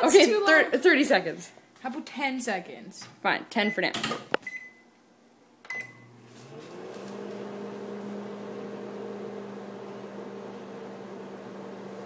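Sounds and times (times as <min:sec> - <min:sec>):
microwave keypad beep: 0:03.7 - 0:04.9, 0:05.7 - 0:06.1
microwave oven humming: 0:05.7 - 0:12.0.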